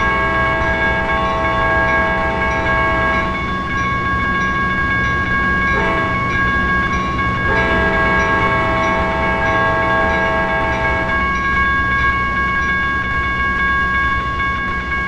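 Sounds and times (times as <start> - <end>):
locomotive air horn chord: 0.0 - 3.4, 5.8 - 6.3, 7.5 - 11.2
passing train rumble: 0.0 - 15.0.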